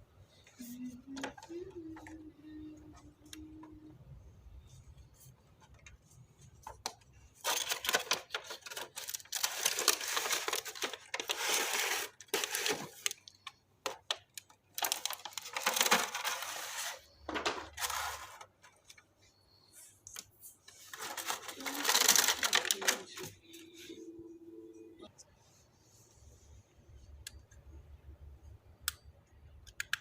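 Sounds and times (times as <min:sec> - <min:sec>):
packaging rustling and clicking: 0:06.6 - 0:19.0.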